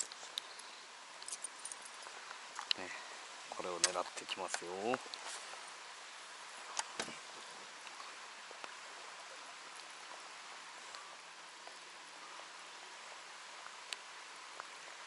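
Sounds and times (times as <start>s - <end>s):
faint ticks: 0.0s - 3.0s, 7.8s - 12.2s, 13.6s - 14.9s
light rain on a lake: 0.0s - 15.0s.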